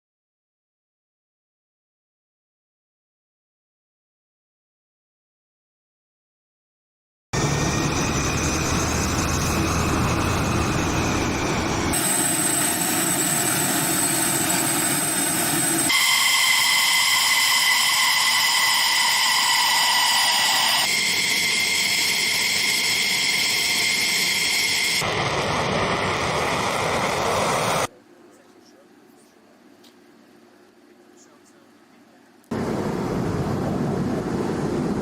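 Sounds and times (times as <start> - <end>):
jet engines roaring with turbine whine: 7.4 - 27.9, 32.5 - 35.0.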